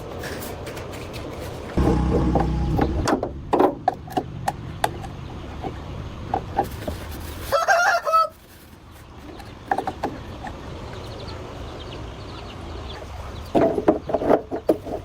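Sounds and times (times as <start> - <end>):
low hum: 1.8 - 4.2.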